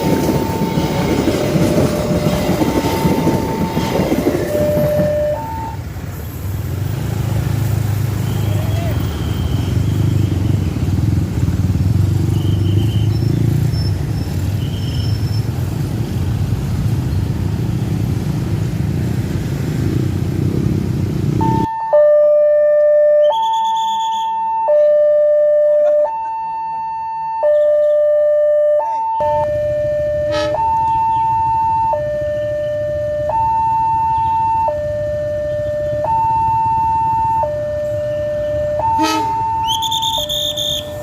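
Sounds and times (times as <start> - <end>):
two-tone hi-lo siren: 0.0 - 5.8, 21.4 - 41.0
vehicle engine rumbling: 0.0 - 21.7.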